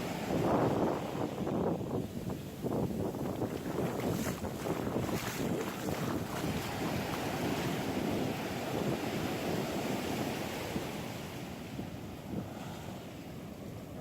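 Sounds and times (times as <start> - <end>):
ocean surf washing on beach: 0.0 - 14.0
wind buffeting microphone: 0.0 - 14.0.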